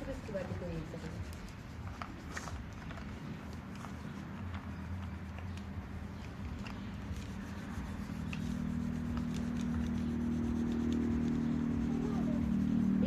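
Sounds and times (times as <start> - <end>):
colour rubbed onto paper: 0.0 - 13.0
steady low hum: 0.0 - 13.0.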